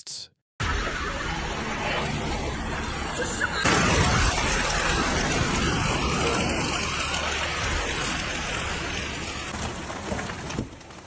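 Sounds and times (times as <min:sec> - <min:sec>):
heavy rain downpour: 0:03.7 - 0:11.0.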